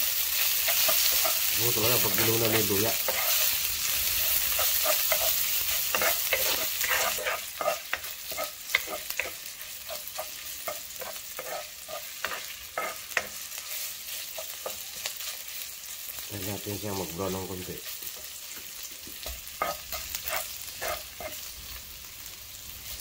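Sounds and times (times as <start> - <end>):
garlic sizzling in hot oil: 0.0 - 23.0
utensil scraping and tapping a pan: 4.3 - 13.4, 18.5 - 21.4.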